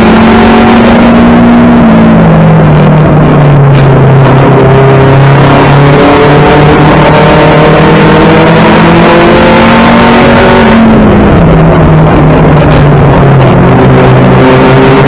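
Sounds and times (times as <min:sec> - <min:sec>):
race car engine revving: 0:00.0 - 0:15.0.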